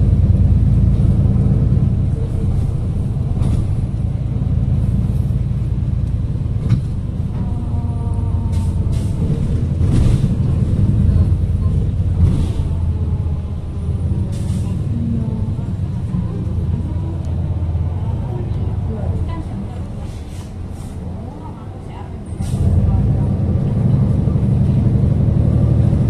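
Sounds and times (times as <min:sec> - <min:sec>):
bus engine and road rumble: 0:00.0 - 0:26.0
air brakes hissing: 0:14.3 - 0:14.9, 0:20.0 - 0:21.0.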